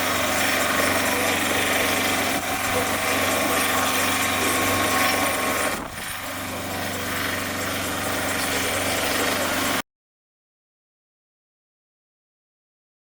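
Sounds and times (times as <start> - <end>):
motor running: 0.0 - 9.8.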